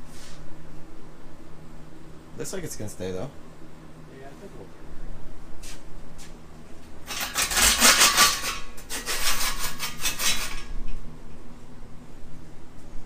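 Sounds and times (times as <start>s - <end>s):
metal parts clattering and scraping: 7.1s - 10.6s.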